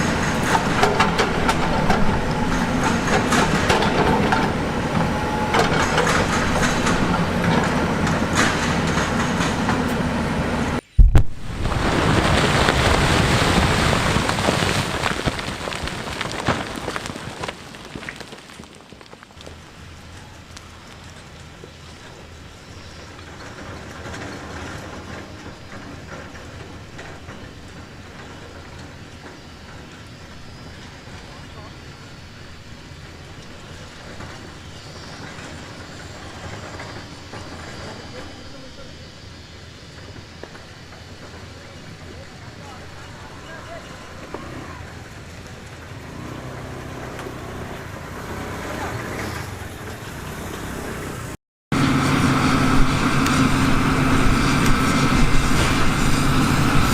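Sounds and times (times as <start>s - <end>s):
diesel machinery engine rumble: 0.0s - 56.9s
rock debris falling to ground: 11.0s - 22.4s.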